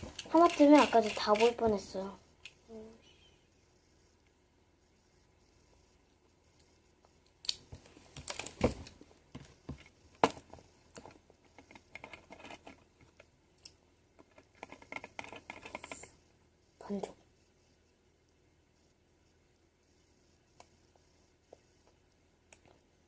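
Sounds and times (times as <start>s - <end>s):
plastic parts clicking and crinkling: 0.0s - 2.6s, 7.4s - 16.2s.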